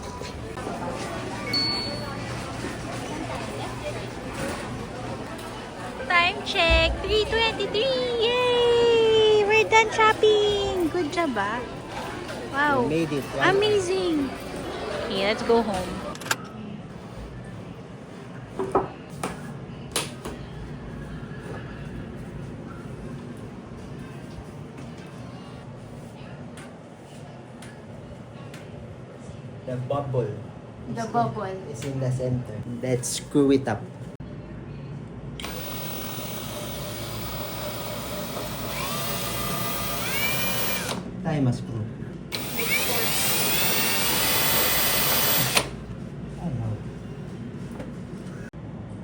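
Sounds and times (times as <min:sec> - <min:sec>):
low background hum: 0:00.0 - 0:49.0
power drill motor whine: 0:35.4 - 0:41.1, 0:42.3 - 0:45.8.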